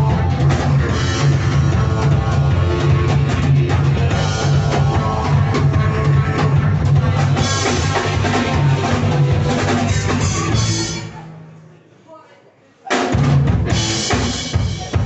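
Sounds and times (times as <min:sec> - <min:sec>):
rock music: 0:00.0 - 0:11.4, 0:13.1 - 0:15.0.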